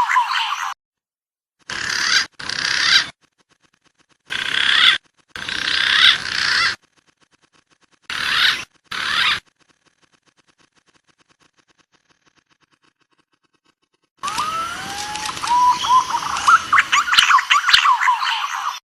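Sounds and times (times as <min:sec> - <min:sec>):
recorded pigeon calls: 0:01.7 - 0:03.1, 0:03.8 - 0:06.8, 0:14.2 - 0:18.8.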